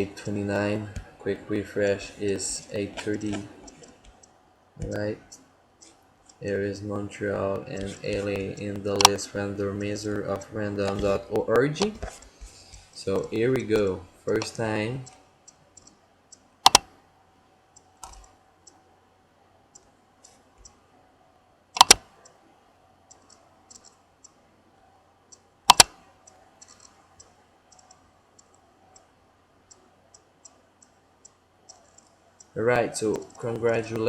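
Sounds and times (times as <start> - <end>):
sharp computer clicks: 1.8 - 6.5, 7.5 - 17.0, 17.7 - 18.8, 19.7 - 20.8, 21.8 - 22.4, 23.0 - 24.4, 25.3 - 34.0.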